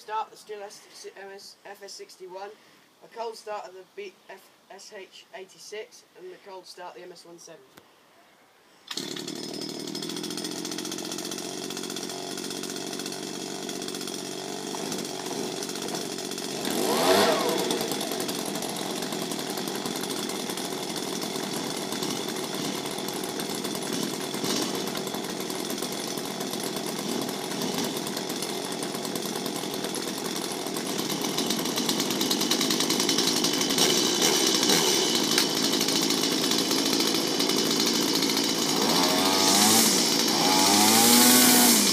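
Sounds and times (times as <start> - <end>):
small two-stroke engine running: 8.9 - 41.9.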